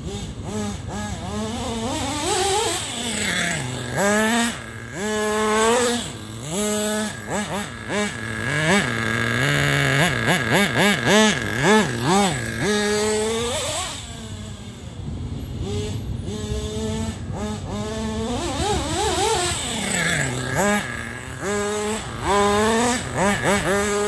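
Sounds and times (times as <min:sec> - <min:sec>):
model engine revving: 0:00.0 - 0:24.0.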